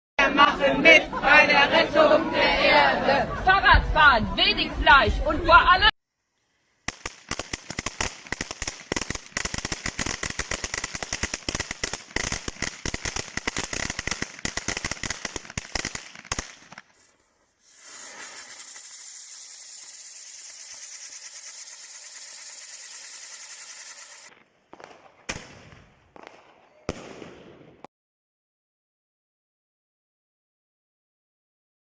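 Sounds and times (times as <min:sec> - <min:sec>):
fireworks hissing: 0:06.1 - 0:25.8
firecracker bangs: 0:06.9 - 0:17.1, 0:17.7 - 0:27.8.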